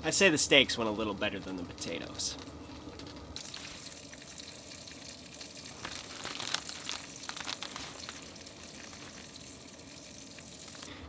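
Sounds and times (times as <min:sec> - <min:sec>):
food sizzling in a frying pan: 0:03.4 - 0:10.9.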